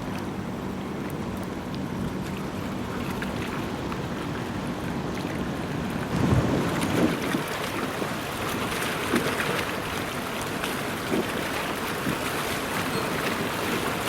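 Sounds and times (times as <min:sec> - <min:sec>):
river water rushing: 0:00.0 - 0:14.0
wind buffeting microphone: 0:01.9 - 0:10.0.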